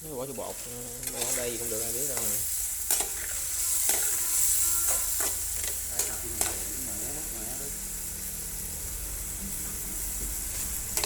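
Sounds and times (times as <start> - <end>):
grubs sizzling in a pan: 0.0 - 11.0.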